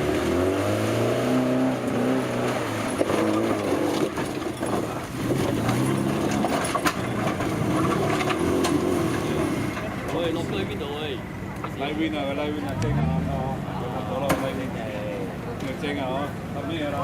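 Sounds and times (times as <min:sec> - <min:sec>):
off-road vehicle engine revving: 0:00.0 - 0:17.0
knocks and clatter: 0:02.8 - 0:10.2.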